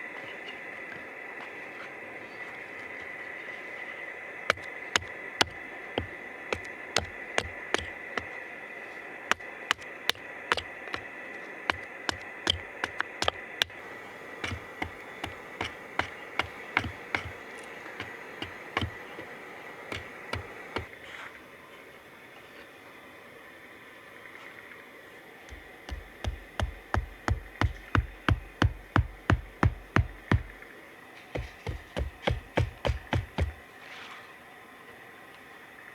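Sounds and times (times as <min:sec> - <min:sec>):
steady hiss: 0:00.0 - 0:35.9
tool knocking on wood: 0:04.5 - 0:08.3, 0:09.3 - 0:11.1, 0:11.7 - 0:20.9, 0:25.5 - 0:30.6, 0:31.4 - 0:33.6
hammering with deep thuds: 0:11.7 - 0:20.9, 0:25.5 - 0:30.6, 0:31.4 - 0:33.6.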